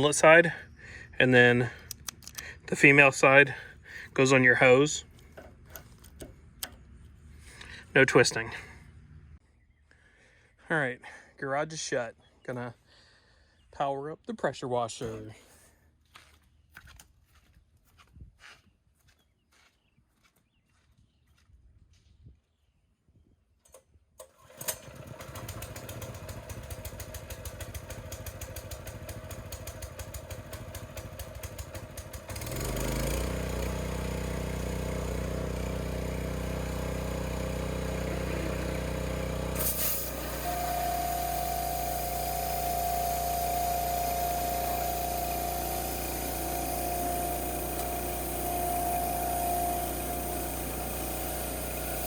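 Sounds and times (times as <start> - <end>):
pressure washer engine running: 24.3 - 52.0.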